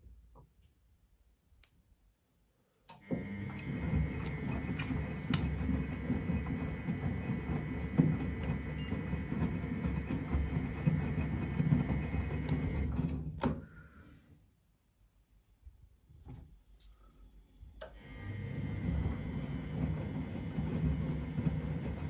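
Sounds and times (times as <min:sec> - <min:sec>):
washing machine motor whine: 0:02.9 - 0:13.5, 0:17.8 - 0:22.0.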